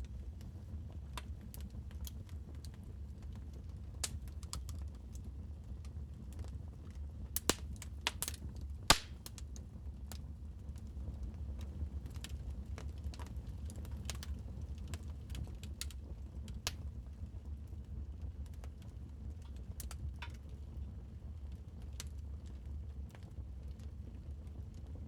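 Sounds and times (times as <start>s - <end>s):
wood fire crackling: 0.0s - 24.8s.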